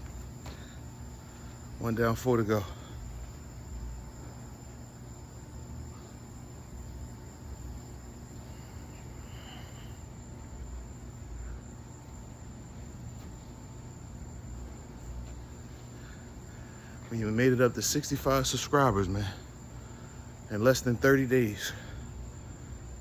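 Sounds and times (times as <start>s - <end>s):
low background hum: 0.0s - 23.0s.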